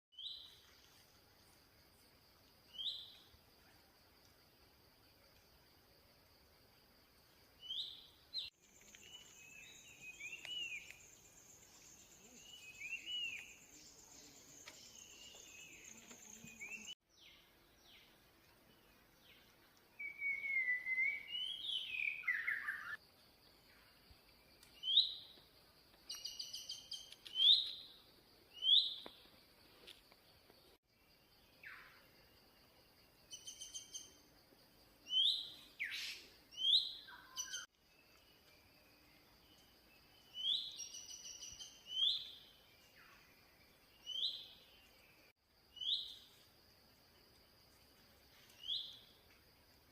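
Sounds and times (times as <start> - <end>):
insects high tone: 4.4 - 18.1, 18.7 - 49.9
birds whistling calls: 20.0 - 23.0.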